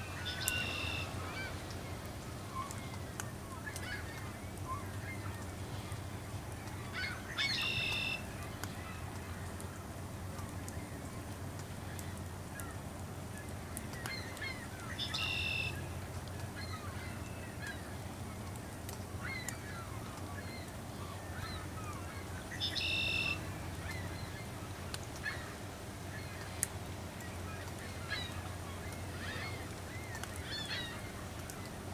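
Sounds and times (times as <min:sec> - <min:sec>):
seabirds calling: 0:00.0 - 0:03.0, 0:19.2 - 0:31.9.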